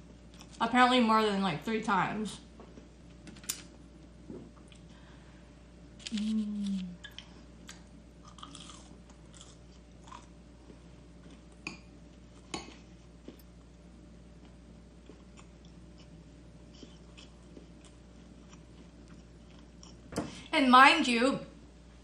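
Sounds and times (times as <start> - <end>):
person chewing crunchy food: 6.0 - 13.8, 14.4 - 20.1.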